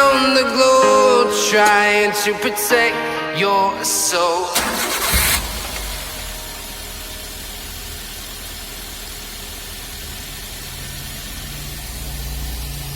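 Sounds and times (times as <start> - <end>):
car engine idling: 4.6 - 12.9
steady hiss: 5.4 - 12.9.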